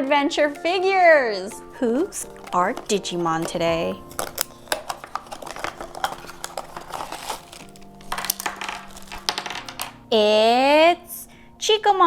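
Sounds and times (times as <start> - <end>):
packaging crinkling: 0.3 - 10.7
small plastic pieces clicking: 0.4 - 10.1.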